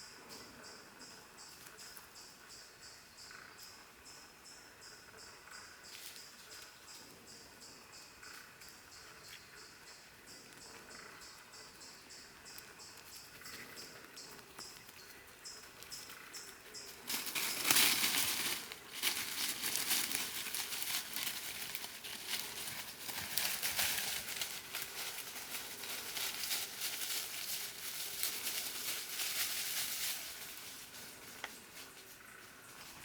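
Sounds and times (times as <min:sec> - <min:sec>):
leaf litter rustling and crackling: 0:17.1 - 0:31.1.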